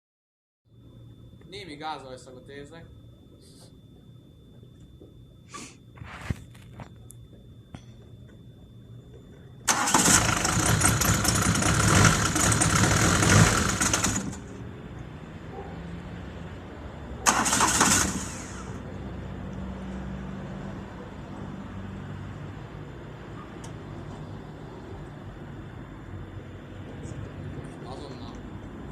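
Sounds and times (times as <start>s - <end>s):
man talking: 1.5s - 2.9s, 27.8s - 28.4s
diesel engine starting and idling: 9.6s - 14.6s, 17.2s - 19.4s.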